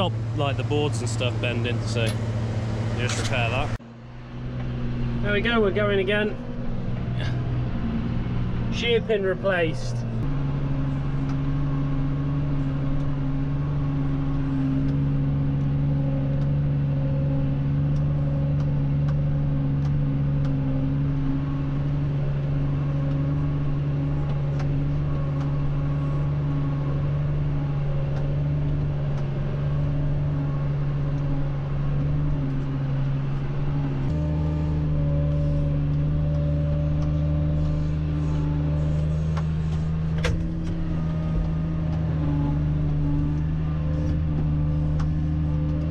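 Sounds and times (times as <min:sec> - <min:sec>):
tractor engine droning: 0:00.0 - 0:45.9.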